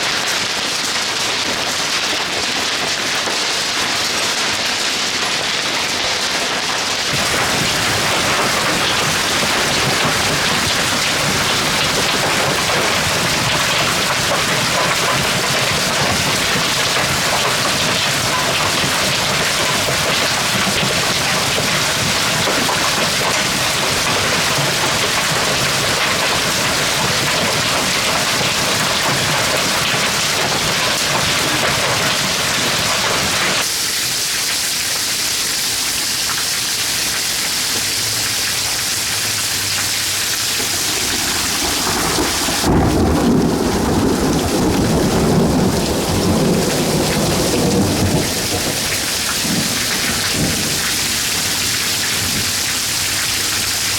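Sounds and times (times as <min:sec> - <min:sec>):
hail and heavy rain: 0:00.0 - 0:53.9
thunder rumble: 0:07.2 - 0:33.6, 0:40.3 - 0:53.4.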